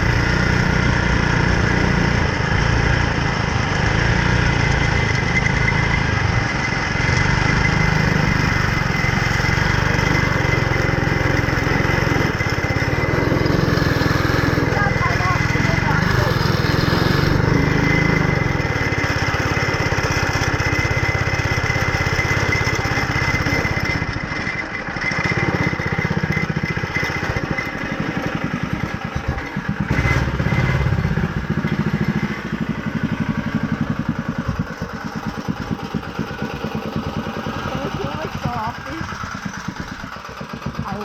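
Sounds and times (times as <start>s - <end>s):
go-kart engine running: 0.0s - 41.0s.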